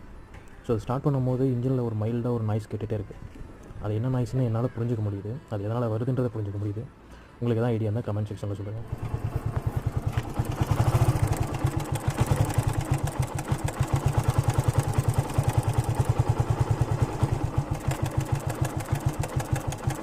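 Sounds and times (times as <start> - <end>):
mechanical noise inside engine: 8.8 - 20.0
motorcycle engine idling: 8.8 - 20.0.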